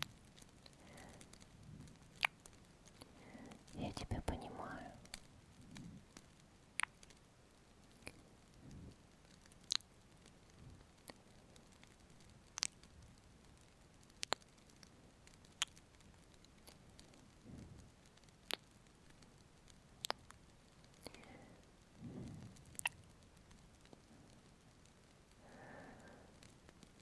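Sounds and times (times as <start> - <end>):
low hiss: 0.0 - 27.0
sharp clicks: 14.1 - 17.1
wet lip smacks: 14.2 - 14.4, 20.0 - 20.3, 22.8 - 23.0.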